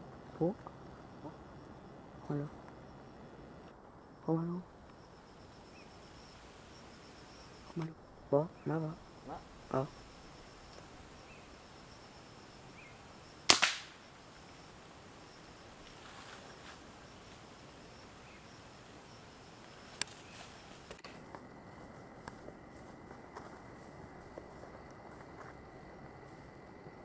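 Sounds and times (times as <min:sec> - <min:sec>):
high insect buzz: 0:00.0 - 0:27.0
air rifle firing: 0:13.5 - 0:14.0.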